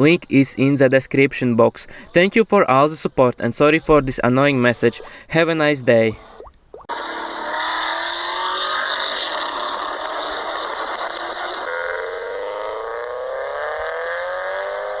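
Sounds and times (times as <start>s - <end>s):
car engine accelerating: 6.9s - 15.0s.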